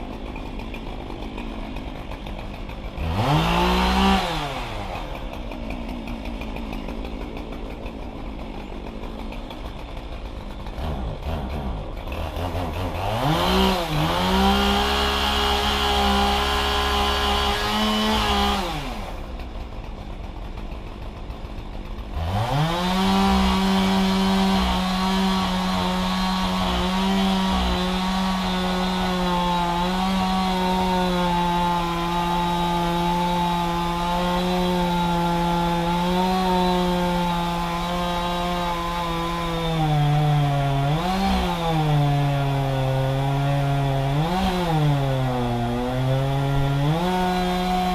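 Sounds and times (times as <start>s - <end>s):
chainsaw revving and idling: 0.0s - 47.9s.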